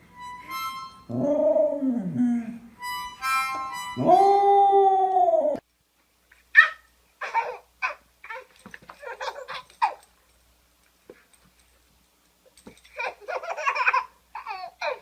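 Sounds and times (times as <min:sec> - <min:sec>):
steady musical notes: 0:00.0 - 0:01.2, 0:02.7 - 0:04.4
dog howling: 0:04.0 - 0:05.6.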